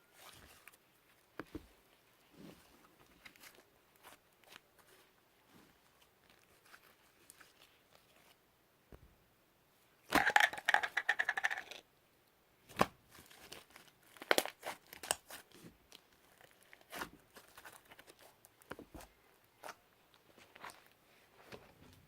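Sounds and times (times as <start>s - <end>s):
slime crackling and popping: 12.7s - 18.3s.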